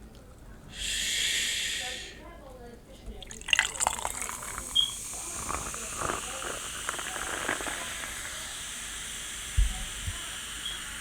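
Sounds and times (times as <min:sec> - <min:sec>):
steady hiss: 0:00.7 - 0:02.3, 0:03.8 - 0:11.0
faint crackles: 0:03.2 - 0:11.0.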